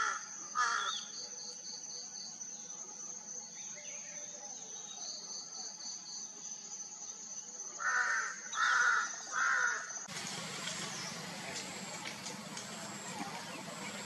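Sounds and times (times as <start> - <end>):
crow cawing: 0.0 - 0.9, 7.8 - 9.9.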